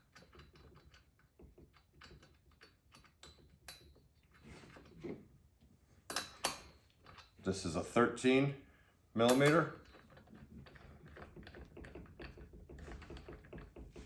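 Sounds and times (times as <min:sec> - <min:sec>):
small metal parts and tools clicking: 0:00.0 - 0:04.9, 0:06.1 - 0:07.4, 0:09.2 - 0:14.0.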